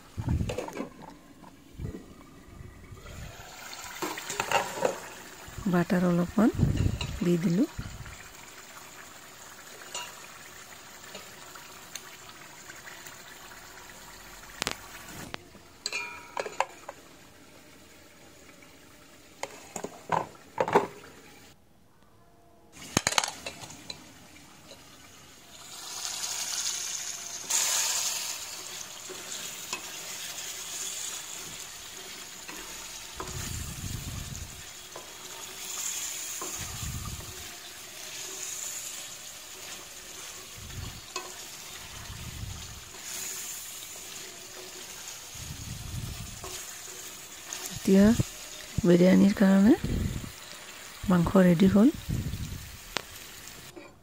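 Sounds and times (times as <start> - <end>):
chicken sizzling in a pan: 1.2 - 20.2, 22.8 - 53.8
curry bubbling: 23.4 - 53.8.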